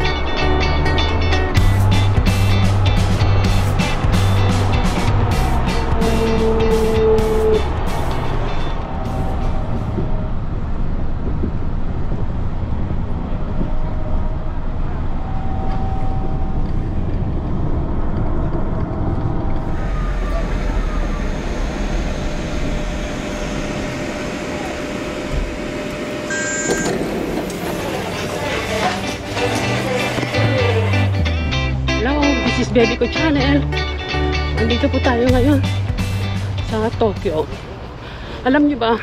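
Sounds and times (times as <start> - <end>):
train cabin running rumble: 1.6 - 31.1
brief high tone: 23.9 - 27.1.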